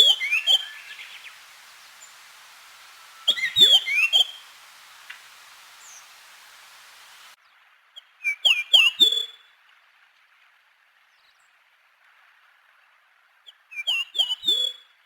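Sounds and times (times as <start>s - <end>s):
songbird whistling falling notes: 0.0s - 7.4s.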